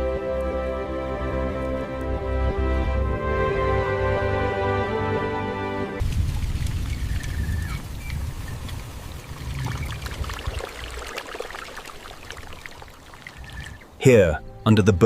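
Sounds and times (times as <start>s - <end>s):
water pouring and splashing: 6.0s - 14.0s.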